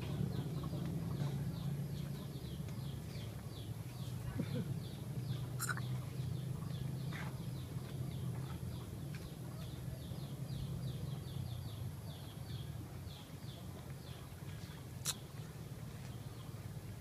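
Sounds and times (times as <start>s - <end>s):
small bird chirping: 5.2s - 7.7s.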